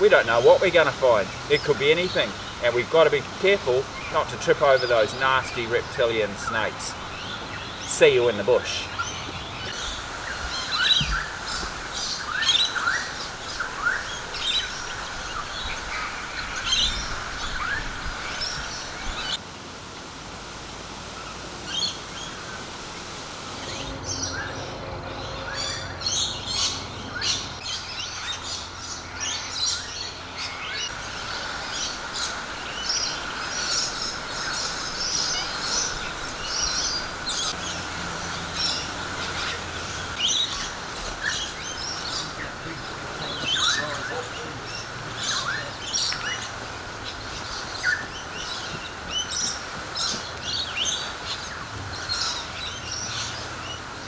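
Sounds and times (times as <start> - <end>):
birds chirping: 0.0 - 54.0
steady high drone: 19.4 - 45.0.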